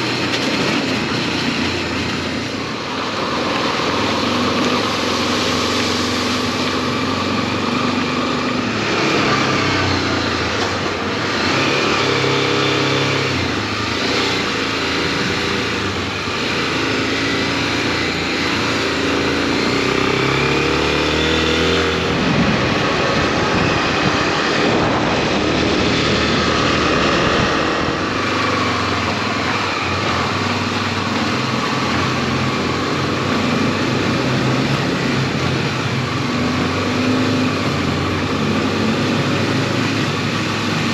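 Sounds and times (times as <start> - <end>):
motorcycle engine running: 0.0 - 40.9
wind rush: 12.6 - 40.9.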